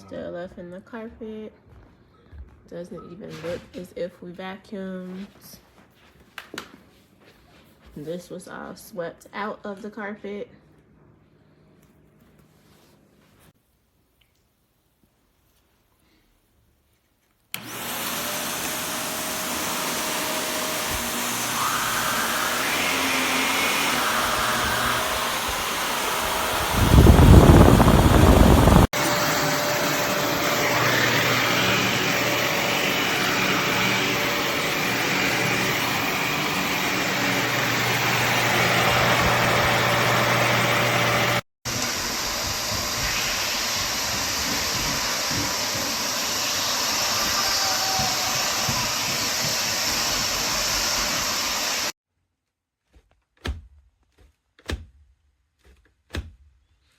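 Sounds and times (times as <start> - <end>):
vacuum cleaner on carpet: 17.5 - 51.9.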